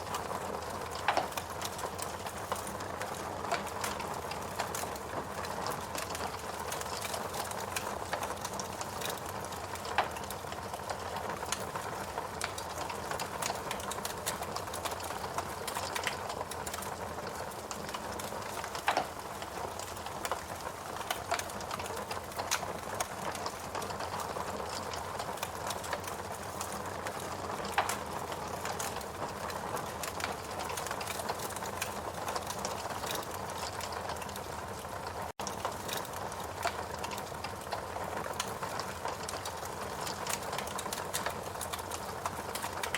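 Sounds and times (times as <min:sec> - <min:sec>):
log fire crackling: 0:00.0 - 0:42.9
fire pops: 0:00.1 - 0:10.3, 0:17.9 - 0:24.2.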